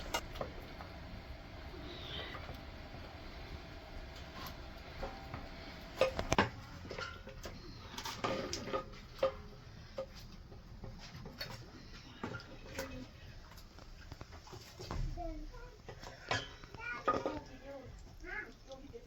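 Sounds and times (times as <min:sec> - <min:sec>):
dishes and utensils clinking: 0:04.9 - 0:10.2, 0:16.0 - 0:17.6.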